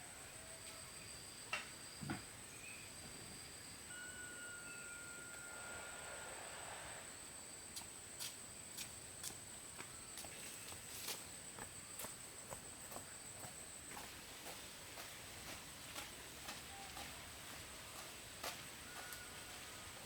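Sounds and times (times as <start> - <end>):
high insect trill: 0.3 - 14.5.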